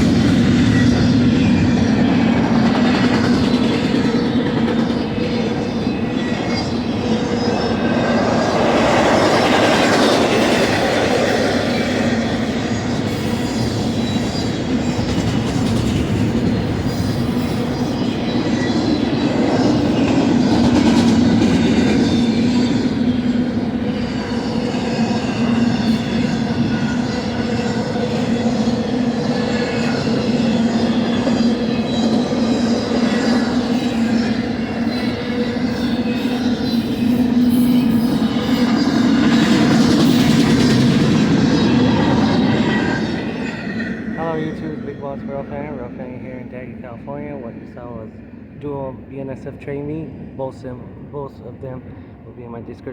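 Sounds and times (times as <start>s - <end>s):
freight train wheels on rails: 0.0s - 46.0s.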